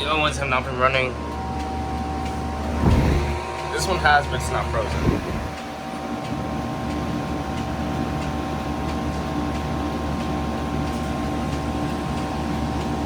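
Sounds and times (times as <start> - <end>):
heat pump compressor and fan hum: 0.0 - 13.0
steady tones: 2.6 - 5.6.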